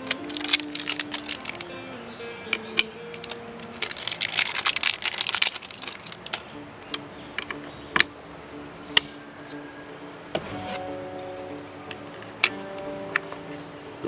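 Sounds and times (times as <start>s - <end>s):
door lock parts clicking: 0.0s - 1.7s, 2.8s - 6.5s.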